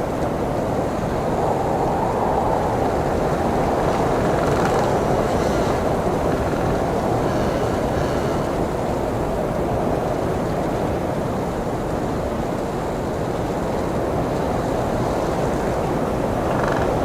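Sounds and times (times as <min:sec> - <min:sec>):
blizzard wind blowing: 0:00.0 - 0:17.0.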